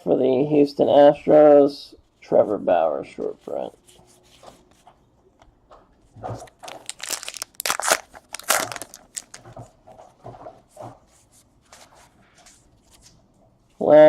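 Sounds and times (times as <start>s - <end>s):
plastic wrappers crinkling and tearing: 6.5s - 9.6s.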